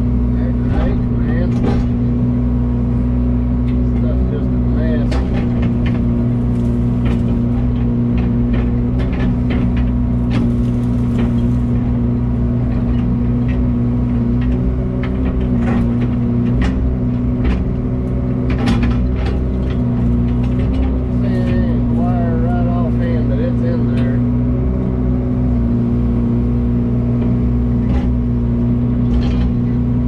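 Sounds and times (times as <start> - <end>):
vehicle engine droning: 0.0 - 30.0
clicks and rattles: 5.0 - 13.7, 14.3 - 22.1.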